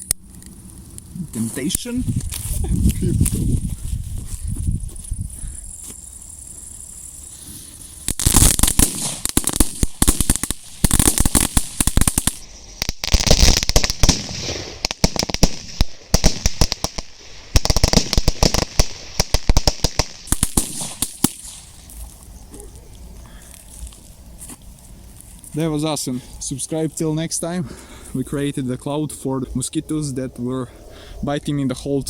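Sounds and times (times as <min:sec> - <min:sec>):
firecrackers crackling: 0:07.3 - 0:25.9.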